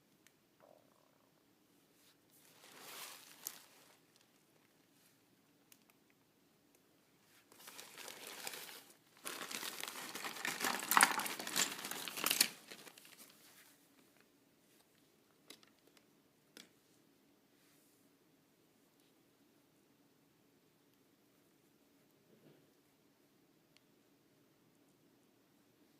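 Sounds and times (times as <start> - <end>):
packaging crinkling: 2.5 - 4.0, 7.5 - 13.4.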